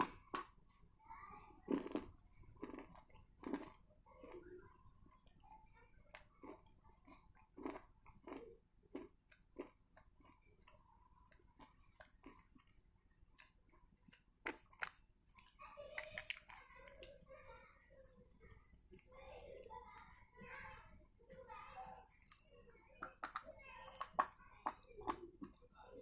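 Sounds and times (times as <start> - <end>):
crunchy chewing: 1.7 - 5.4, 6.1 - 17.1, 21.9 - 22.5.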